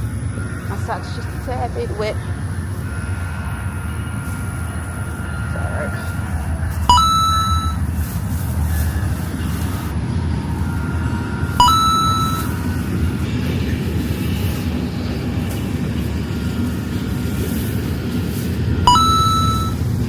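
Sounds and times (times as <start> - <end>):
low rumble: 0.0 - 20.0
bright bell-like dings: 6.9 - 7.8, 11.6 - 12.6, 18.9 - 19.8.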